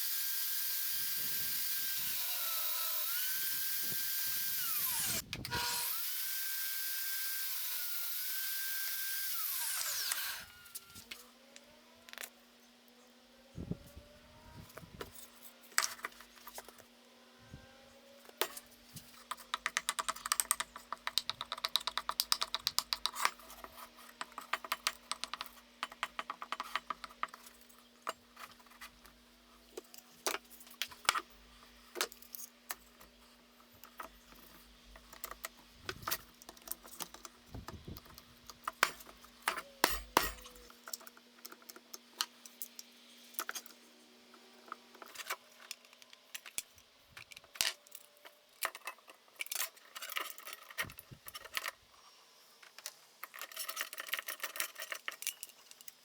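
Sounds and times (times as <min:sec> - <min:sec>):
small hard objects clicking: 0:19.4 - 0:23.3.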